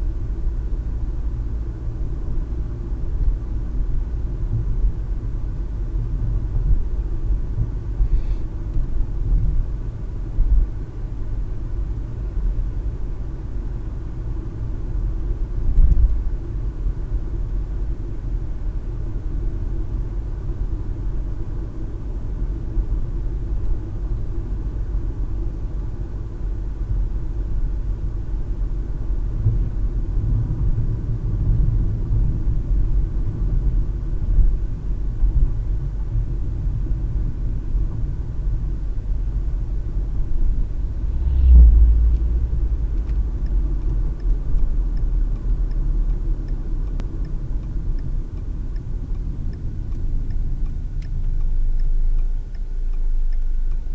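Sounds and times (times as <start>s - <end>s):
car road noise rumble: 0.0s - 53.9s
heavy low thump: 40.6s - 44.1s
turn signal clicking: 41.8s - 53.9s.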